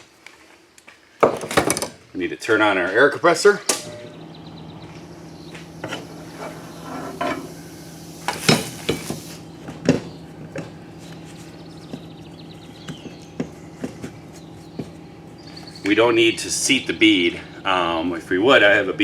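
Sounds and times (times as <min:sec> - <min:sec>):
air compressor motor humming: 0:03.8 - 0:19.0
air hissing: 0:04.2 - 0:16.8.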